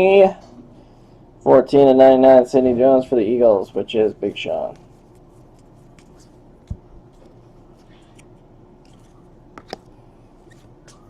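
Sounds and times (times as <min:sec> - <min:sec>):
steady low hum: 0:00.0 - 0:11.0
cards handled on table: 0:04.1 - 0:11.0.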